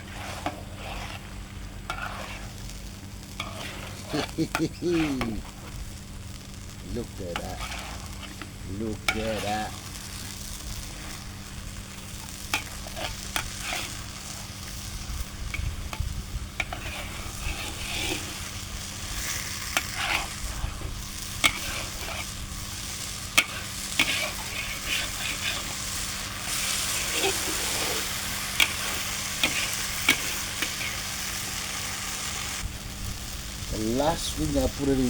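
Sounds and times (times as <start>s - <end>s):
curry sizzling and bubbling in a pan: 0.0s - 35.0s.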